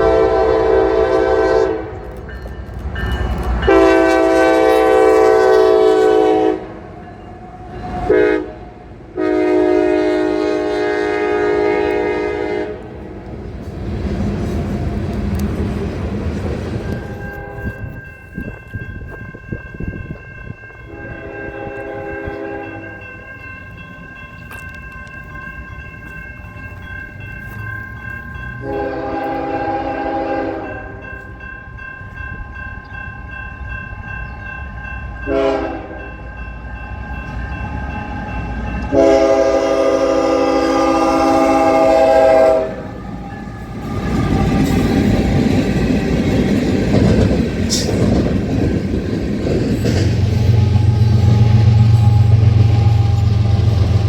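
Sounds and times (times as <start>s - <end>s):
locomotive horn blasts: 0.0s - 2.1s, 3.6s - 6.9s, 7.9s - 13.2s, 16.9s - 18.0s, 20.8s - 23.1s, 28.6s - 31.2s, 35.2s - 36.2s, 38.8s - 44.8s, 50.3s - 54.0s
train rumbling on rails: 0.0s - 54.0s.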